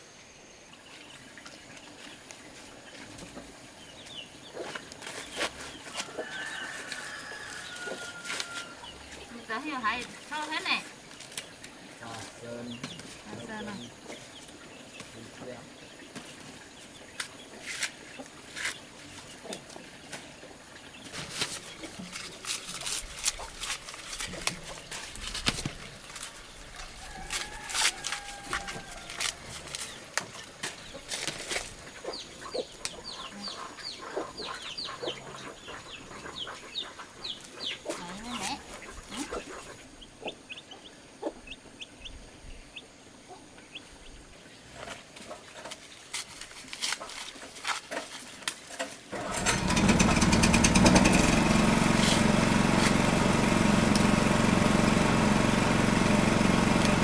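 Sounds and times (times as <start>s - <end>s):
chickens clucking and peeping: 0.9s - 22.4s, 23.4s - 46.1s
small engine running: 49.1s - 57.0s.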